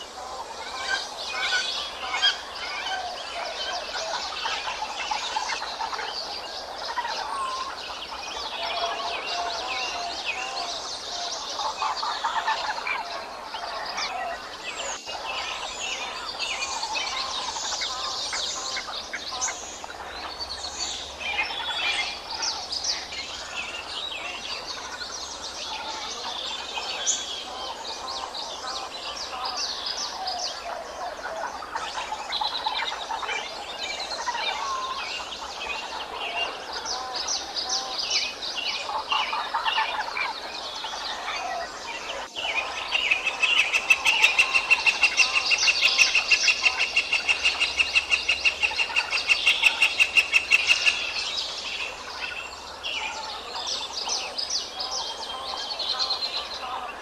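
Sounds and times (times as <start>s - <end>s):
chorus of birds chirping: 0.0s - 57.0s.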